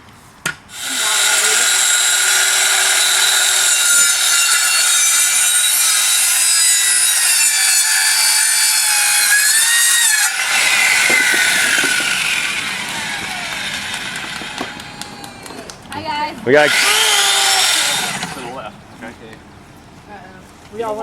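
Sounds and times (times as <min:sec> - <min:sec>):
circular saw cutting wood: 0:00.7 - 0:18.7
saw blade spinning down: 0:00.8 - 0:15.6.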